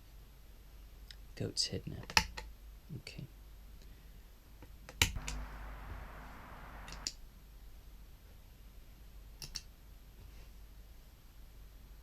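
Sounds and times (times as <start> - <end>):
sharp clicks: 5.2 - 7.1
soft hiss: 5.2 - 7.1.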